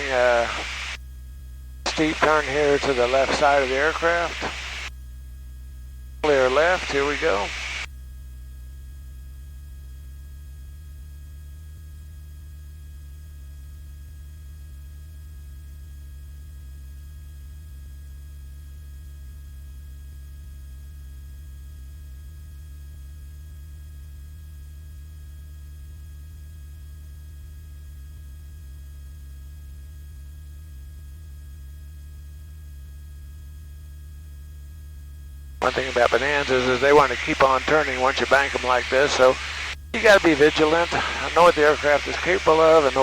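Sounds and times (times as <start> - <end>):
aircraft engine and propeller drone: 6.2 - 7.8, 35.6 - 43.0.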